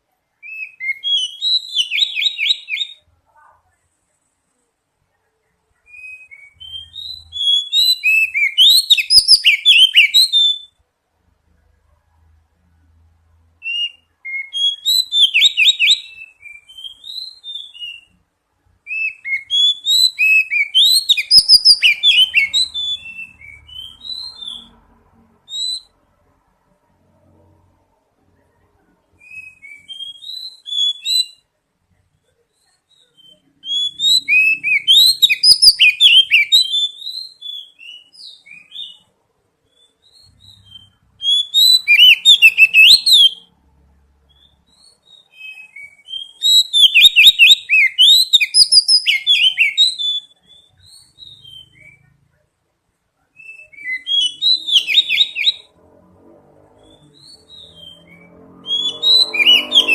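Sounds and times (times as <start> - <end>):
bird singing whistled notes: 0.4 - 3.1, 5.8 - 10.8, 13.6 - 18.2, 18.9 - 24.8, 25.5 - 26.0, 29.1 - 31.5, 32.2 - 43.5, 44.2 - 52.4, 53.2 - 55.7, 56.8 - 59.9.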